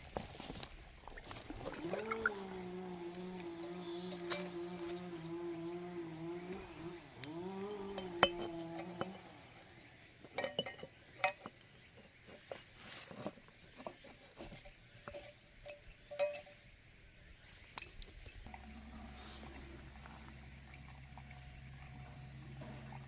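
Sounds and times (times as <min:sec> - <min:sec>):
small hard objects clinking: 0:00.0 - 0:16.6.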